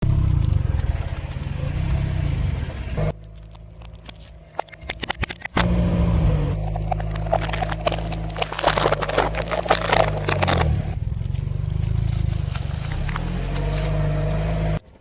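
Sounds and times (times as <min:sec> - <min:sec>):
car engine running: 0:00.0 - 0:15.0
tyre crushing brittle objects: 0:03.1 - 0:05.8, 0:06.6 - 0:14.2.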